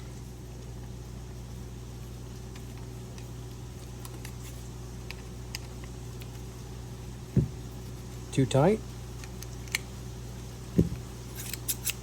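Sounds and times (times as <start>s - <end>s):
steady low hum: 0.0s - 12.0s
scissors parts clicking: 11.4s - 12.0s.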